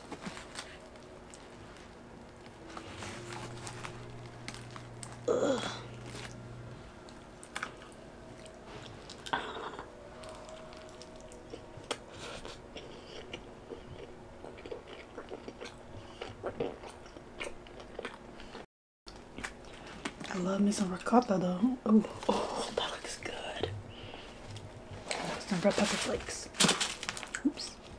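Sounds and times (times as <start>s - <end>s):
person chewing food: 0.0s - 20.3s.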